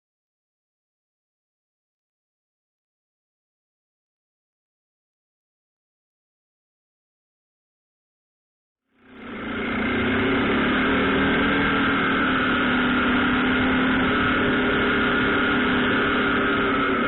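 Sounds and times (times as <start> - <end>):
engine running steadily: 9.0 - 17.0.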